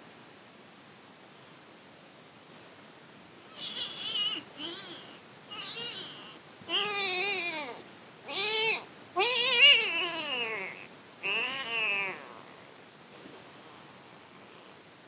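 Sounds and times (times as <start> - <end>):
kitten meowing: 3.6 - 12.3.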